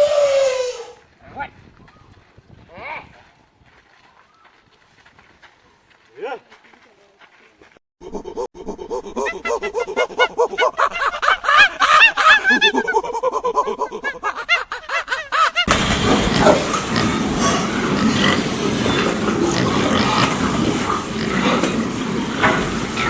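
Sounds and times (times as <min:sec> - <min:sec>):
short high-pitched animal calls: 0:00.0 - 0:01.0
jumble of animal sounds: 0:15.7 - 0:23.0.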